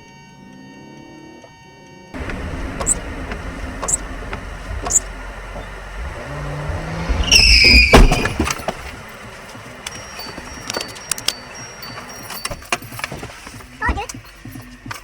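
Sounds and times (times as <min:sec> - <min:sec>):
tyre squeal: 0:02.2 - 0:14.4
car road and engine rumble: 0:02.2 - 0:15.0
collision bang: 0:07.1 - 0:08.7.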